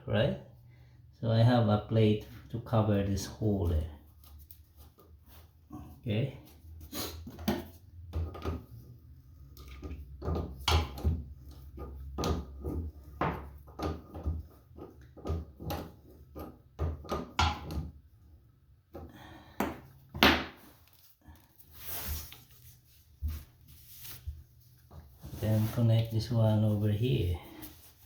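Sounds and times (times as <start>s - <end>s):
plumbing parts knocking and rustling: 7.3s - 20.6s.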